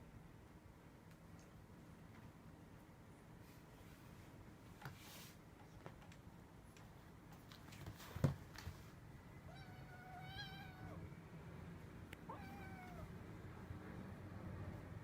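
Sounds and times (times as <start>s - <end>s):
kitten meowing: 9.5s - 11.0s, 12.3s - 13.1s.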